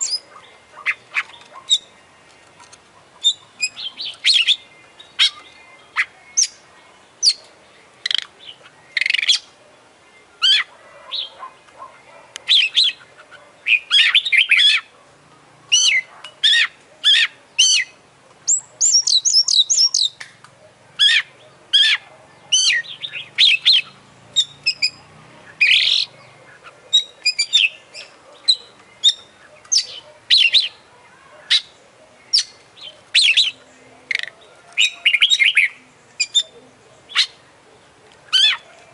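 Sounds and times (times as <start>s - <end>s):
bird singing whistles and trills: 3.2s - 6.6s, 15.7s - 20.2s, 21.0s - 30.9s.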